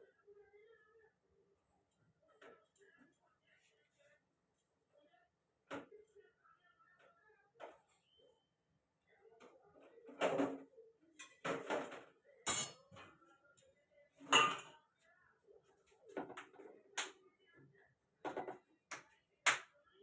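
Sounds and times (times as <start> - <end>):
kitchen utensils knocking and clinking: 12.5 - 12.8.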